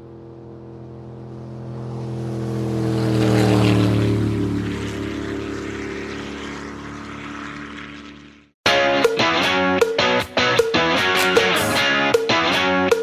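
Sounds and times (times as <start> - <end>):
engine passing by: 0.0 - 8.6.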